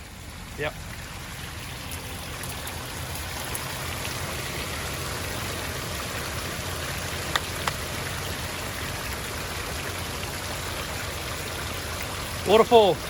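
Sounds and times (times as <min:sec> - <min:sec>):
water rushing over waterfall: 0:00.0 - 0:13.0.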